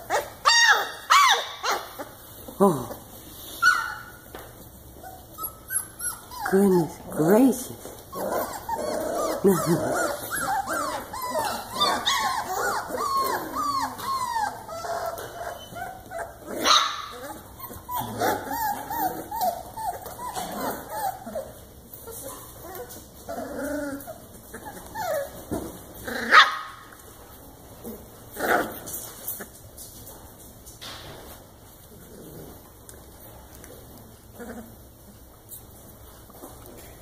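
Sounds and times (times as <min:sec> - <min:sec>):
puppy yelps: 0:00.0 - 0:02.1, 0:03.6 - 0:04.2, 0:05.0 - 0:06.6, 0:08.2 - 0:21.5, 0:26.2 - 0:26.8
puppies yipping and whining: 0:00.0 - 0:02.5, 0:03.4 - 0:27.2.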